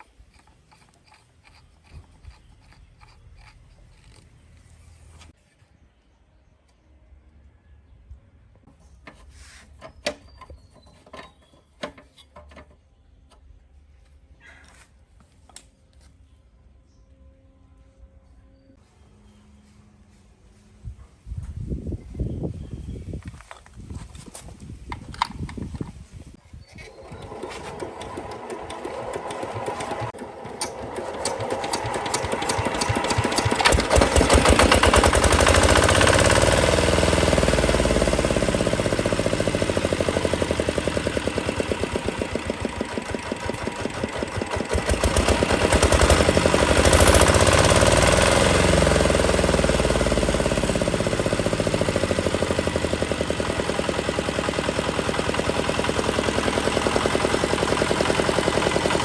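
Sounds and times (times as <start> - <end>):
diesel engine starting and running: 26.8 - 59.0.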